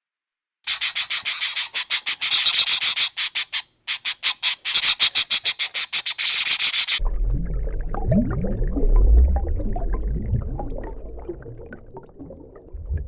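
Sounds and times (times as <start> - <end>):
animal rasping chatter: 0.7 - 7.0.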